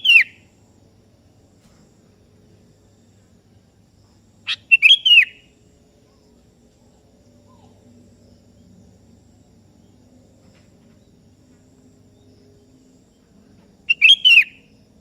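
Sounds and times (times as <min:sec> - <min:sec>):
bird call: 0:00.0 - 0:00.4, 0:04.5 - 0:05.5, 0:13.9 - 0:14.7
faint low hum: 0:00.0 - 0:15.0.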